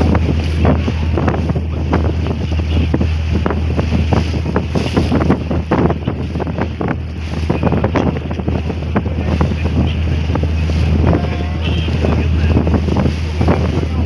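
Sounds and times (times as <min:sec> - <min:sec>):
rushing water: 0:00.0 - 0:14.0
wind buffeting microphone: 0:00.0 - 0:14.0
ferry engines droning: 0:07.0 - 0:14.0.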